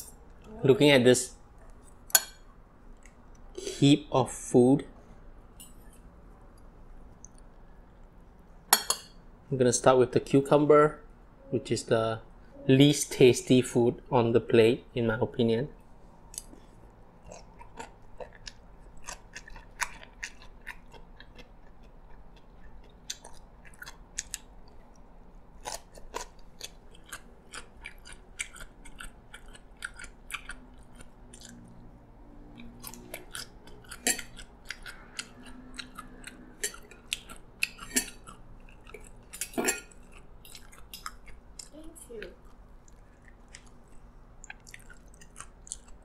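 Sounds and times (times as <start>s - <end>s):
crunchy chewing: 16.3s - 41.7s, 42.3s - 46.0s.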